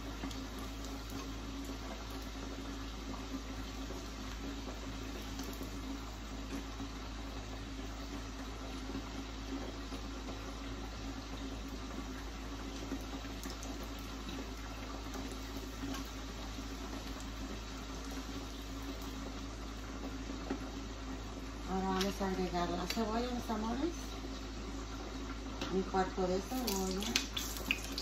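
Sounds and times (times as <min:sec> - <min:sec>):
tortilla sizzling in hot oil: 0:26.4 - 0:28.0.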